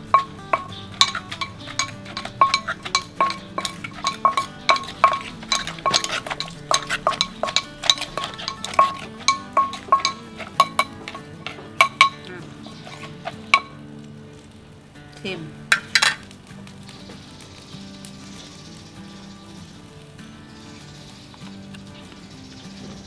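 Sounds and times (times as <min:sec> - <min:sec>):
pestle knocking in a mortar: 0:00.0 - 0:13.7, 0:15.7 - 0:16.2.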